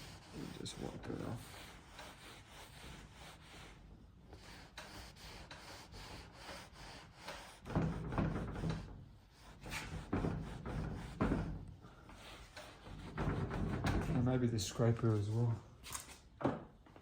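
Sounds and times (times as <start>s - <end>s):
rag rubbing on wood: 0.0s - 14.2s.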